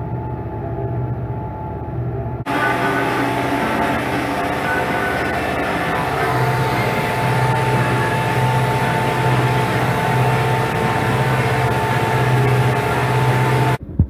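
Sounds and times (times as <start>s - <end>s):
steady high whine: 0.0s - 13.8s
tractor engine under load: 2.5s - 13.8s.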